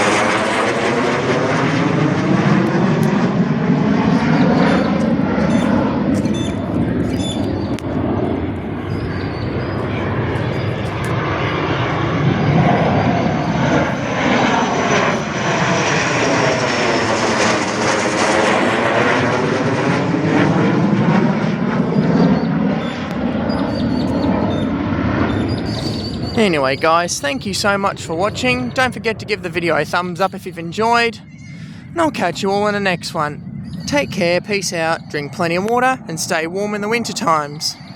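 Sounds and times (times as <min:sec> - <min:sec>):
aircraft passing overhead: 0:00.0 - 0:37.9
thin high whine falling in pitch: 0:04.1 - 0:07.9.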